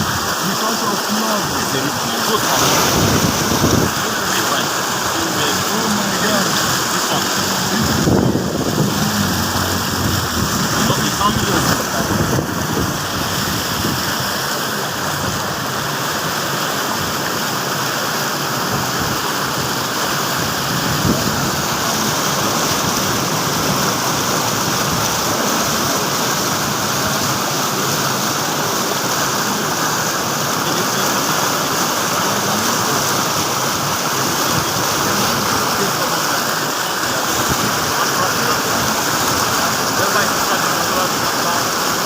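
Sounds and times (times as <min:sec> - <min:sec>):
floodwater rushing: 0:00.0 - 0:42.0.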